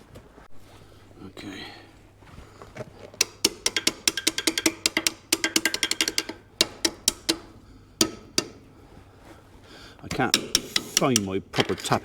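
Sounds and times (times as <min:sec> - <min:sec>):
hammer tapping steel: 0:03.2 - 0:08.7, 0:10.1 - 0:11.4.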